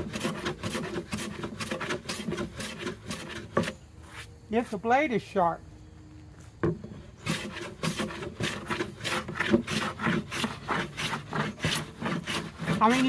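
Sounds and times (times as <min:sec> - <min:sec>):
hand plane shaving wood: 0:00.0 - 0:03.8, 0:07.2 - 0:13.0.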